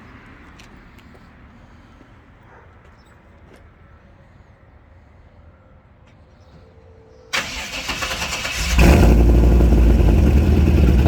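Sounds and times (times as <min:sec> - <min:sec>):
car engine idling: 0:07.4 - 0:11.0.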